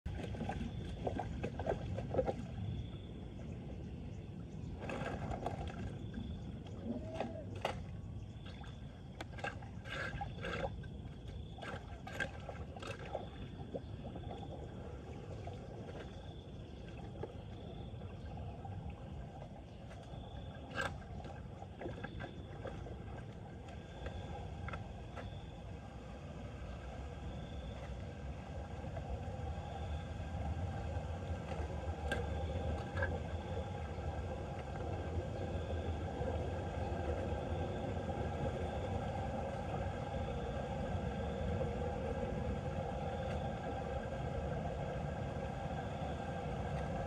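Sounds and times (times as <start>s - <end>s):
splashes and knocks: 0.1s - 3.0s, 4.8s - 14.5s, 19.4s - 25.5s.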